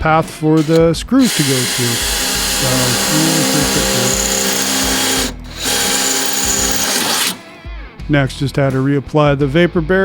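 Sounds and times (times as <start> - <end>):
electric drill boring through steel: 0.6 - 7.5.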